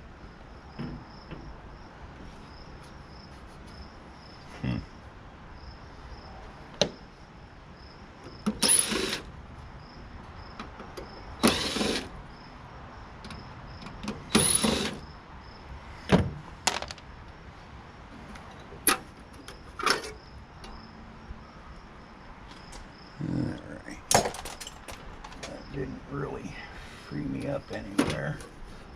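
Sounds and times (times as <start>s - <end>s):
power tool bursts: 8.6s - 9.3s, 11.4s - 12.1s, 14.3s - 15.0s
metal parts clicking and knocking: 16.7s - 17.0s.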